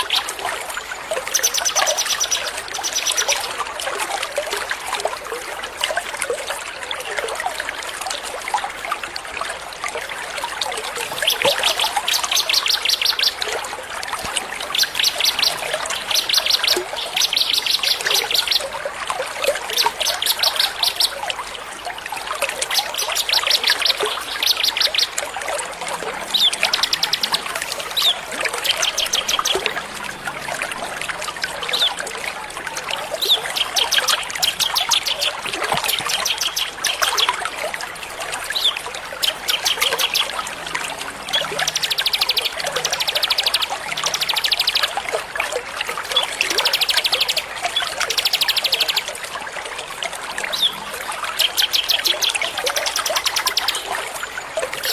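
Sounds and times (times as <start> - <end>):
songbirds trilling: 0.0 - 3.6, 11.0 - 18.8, 19.5 - 21.3, 22.6 - 25.3, 26.0 - 32.0, 32.9 - 37.4, 50.5 - 54.9
running water trickling: 0.0 - 54.9.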